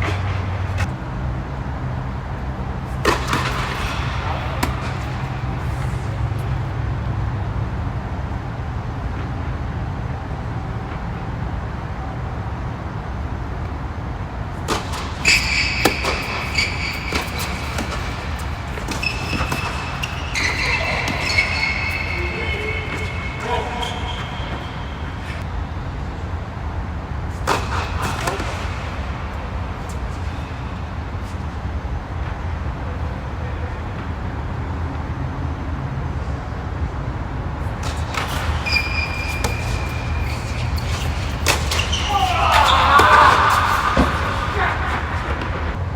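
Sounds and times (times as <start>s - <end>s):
tennis ball hit by rackets: 2.8s - 6.7s, 14.6s - 25.4s, 27.4s - 29.0s, 37.7s - 45.8s
high squeaking: 14.7s - 25.4s, 37.6s - 44.8s.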